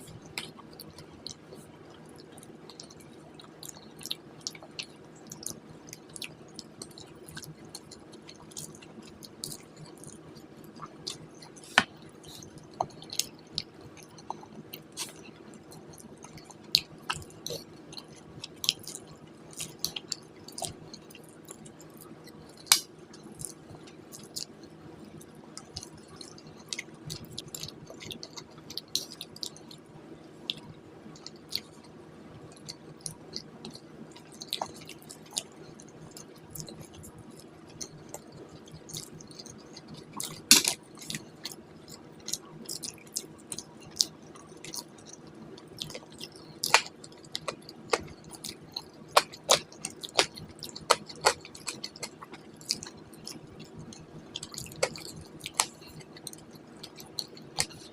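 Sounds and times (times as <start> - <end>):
faint steady hum: 0.0 - 57.9
person chewing food: 0.0 - 57.9
wet mouth clicks: 34.4 - 57.9.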